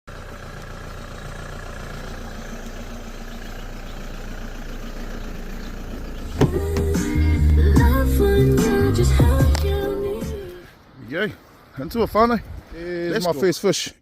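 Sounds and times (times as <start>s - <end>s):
low engine hum: 0.1s - 11.7s
music: 6.4s - 10.6s.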